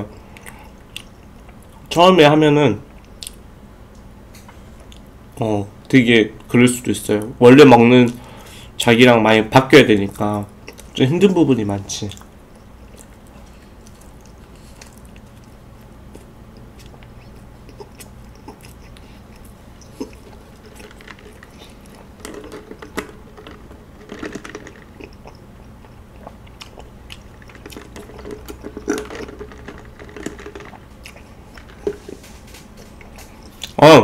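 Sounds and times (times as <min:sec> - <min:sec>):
chewing with wet mouth sounds: 0:00.2 - 0:01.9, 0:10.5 - 0:11.0, 0:12.1 - 0:33.8.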